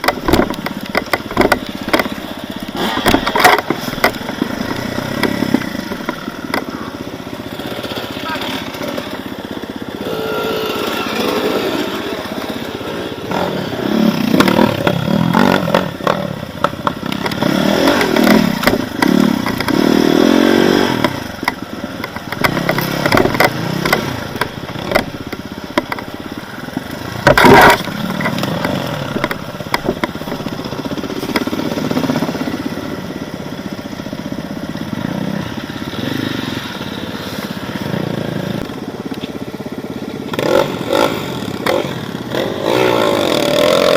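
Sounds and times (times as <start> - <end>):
bike clattering and knocking: 0.0 - 9.9, 14.2 - 20.1, 21.0 - 32.9
motorcycle engine revving: 0.0 - 43.9.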